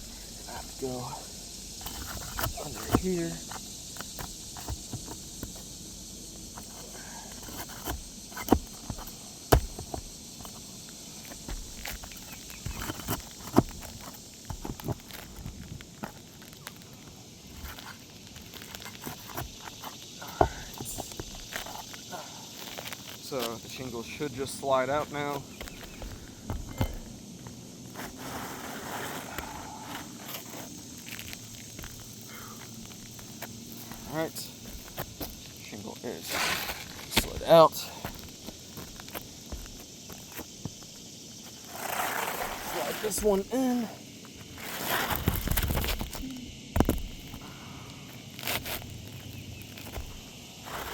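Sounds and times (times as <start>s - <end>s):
shingle scraping: 0.0s - 22.0s, 22.6s - 35.6s, 36.2s - 50.9s
light scraping and ticking: 1.7s - 5.8s, 6.4s - 22.0s.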